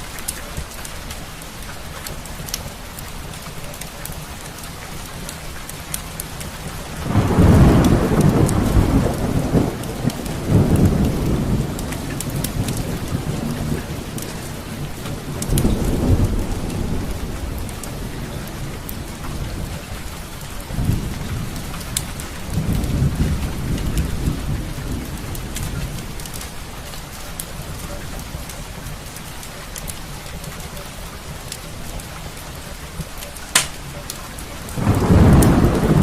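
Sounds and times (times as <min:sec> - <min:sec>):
steady rain: 0:00.0 - 0:36.0
wood fire crackling: 0:00.0 - 0:36.0
thunder rumbling: 0:06.6 - 0:29.1, 0:33.6 - 0:36.0.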